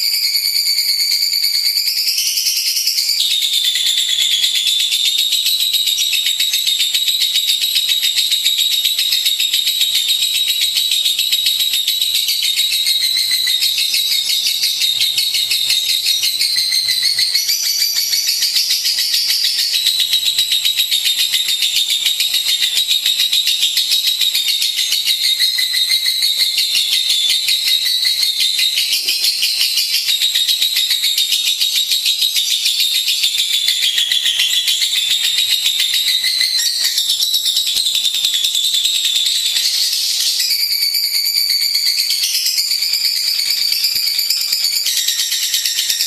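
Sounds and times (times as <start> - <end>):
lovebird chattering: 12.4 - 40.6.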